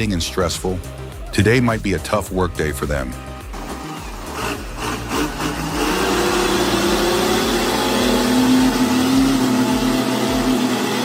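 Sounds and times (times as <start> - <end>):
engine running steadily: 3.4 - 11.0.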